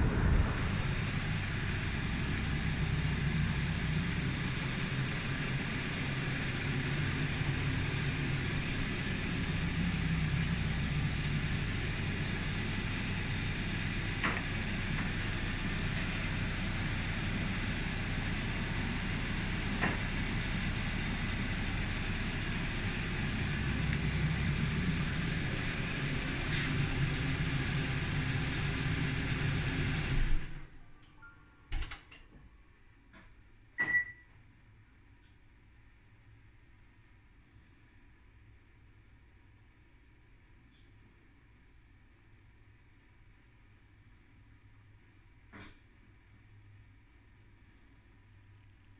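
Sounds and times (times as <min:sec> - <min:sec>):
car engine idling: 0:00.0 - 0:30.6.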